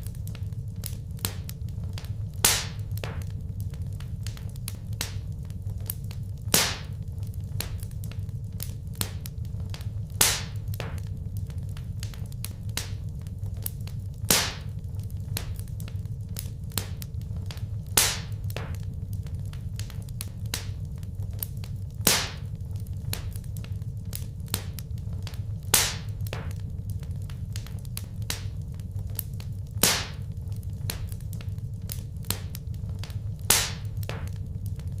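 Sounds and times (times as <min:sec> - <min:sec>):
low steady rumble: 0:00.0 - 0:35.0
wood fire crackling: 0:00.0 - 0:35.0
loud fire pop: 0:02.4 - 0:03.3, 0:06.5 - 0:07.0, 0:10.2 - 0:11.0, 0:14.3 - 0:14.7, 0:18.0 - 0:18.8, 0:22.0 - 0:22.5, 0:25.7 - 0:26.6, 0:29.8 - 0:30.3, 0:33.5 - 0:34.3.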